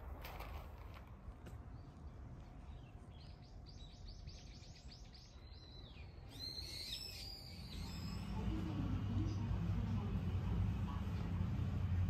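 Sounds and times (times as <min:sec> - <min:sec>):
small birds chirping: 0:01.4 - 0:11.3
low hum: 0:07.2 - 0:12.0.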